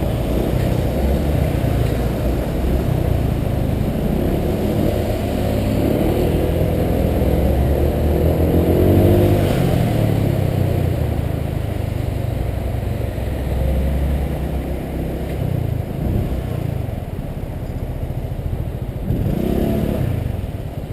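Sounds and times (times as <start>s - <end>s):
scooter engine revving: 19.0s - 20.5s.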